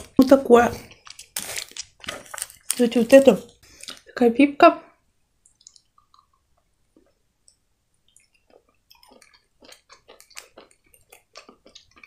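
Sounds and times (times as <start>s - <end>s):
chewing candy mouth clicks: 7.0s - 12.0s.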